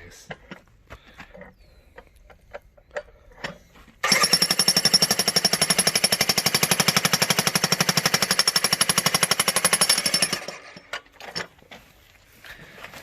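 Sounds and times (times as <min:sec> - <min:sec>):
jackhammer pounding rock: 0:04.0 - 0:11.0.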